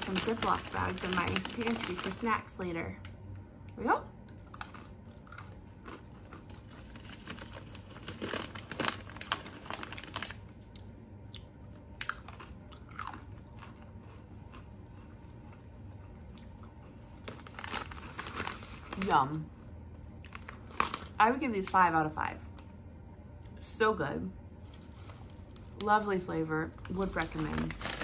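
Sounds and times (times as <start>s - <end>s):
person crunching pretzels: 4.3s - 19.1s.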